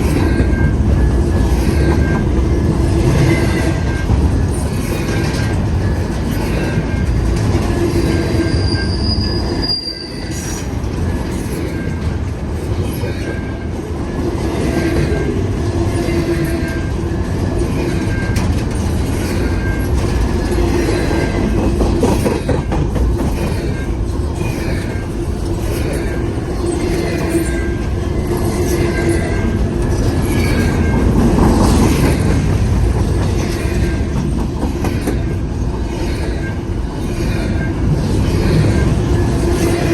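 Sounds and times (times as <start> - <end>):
freight train wheels roaring on rails: 0.0 - 39.9
squealing wheel flanges: 3.2 - 12.0
wheels clicking over rail joints: 10.3 - 39.9.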